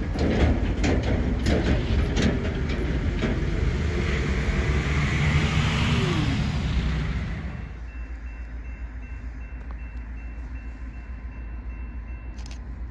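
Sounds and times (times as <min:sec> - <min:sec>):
wheels clicking over rail joints: 0:00.0 - 0:07.8
freight train rolling past: 0:00.0 - 0:12.9.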